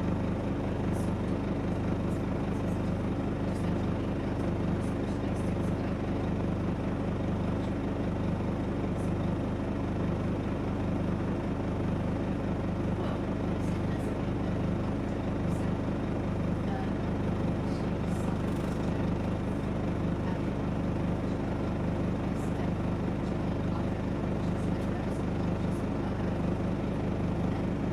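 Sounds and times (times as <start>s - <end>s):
bus diesel engine running: 0.0s - 27.9s.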